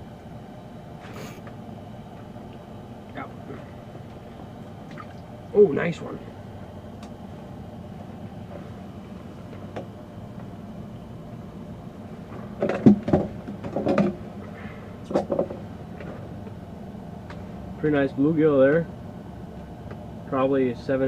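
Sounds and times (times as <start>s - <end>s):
steady low hum: 0.0s - 21.0s
sharp knocks and clattering: 12.3s - 14.2s, 15.1s - 16.2s.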